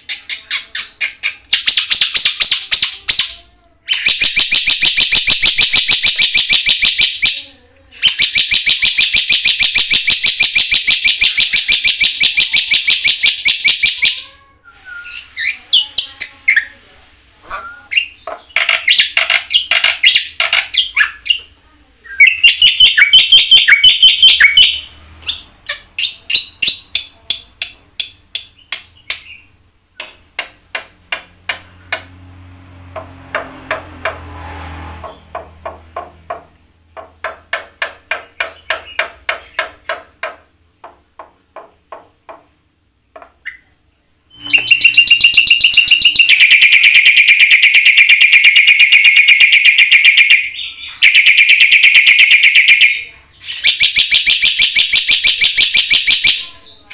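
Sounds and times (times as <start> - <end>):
fast bird trill: 22.2 - 26.9, 44.3 - 56.8
starling singing sharp notes: 44.3 - 49.0.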